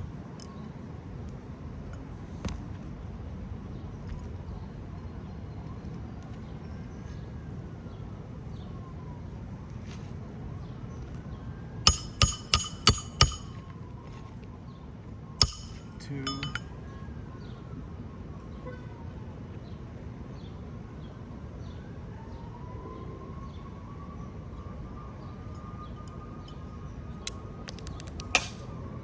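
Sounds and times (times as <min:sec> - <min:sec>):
hammer striking metal tool: 0:11.9 - 0:13.7, 0:15.4 - 0:16.7, 0:28.4 - 0:28.6.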